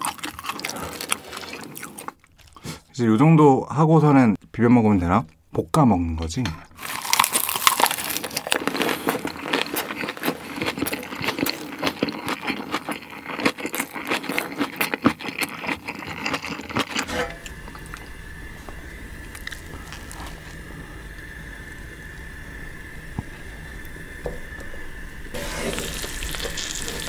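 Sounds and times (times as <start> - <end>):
lettuce crunching while chewing: 0.0 - 2.8, 6.8 - 18.0
steady low hum: 16.6 - 27.0.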